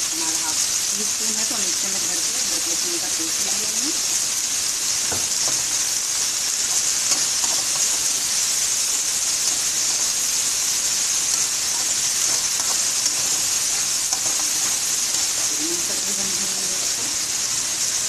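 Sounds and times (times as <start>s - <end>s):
chicken and onions sizzling in oil: 0.0s - 18.0s
metal spatula scraping a pan: 6.6s - 15.5s.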